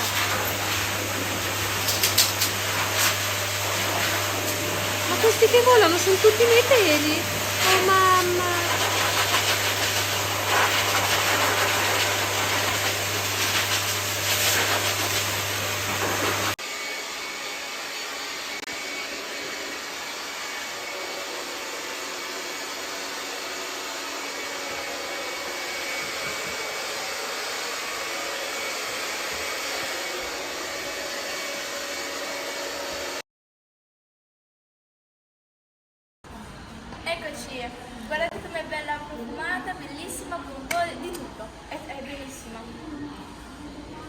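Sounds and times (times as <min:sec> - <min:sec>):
blow dryer blowing air: 0:00.0 - 0:33.2.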